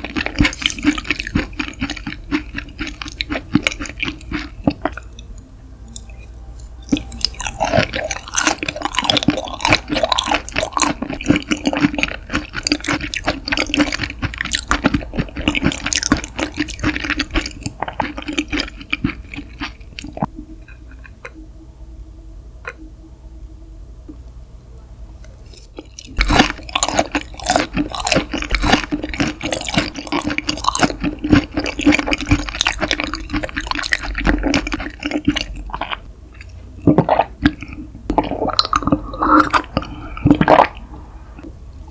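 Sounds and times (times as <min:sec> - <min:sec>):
wet chewing mouth sounds: 0:00.0 - 0:21.4, 0:25.5 - 0:41.6.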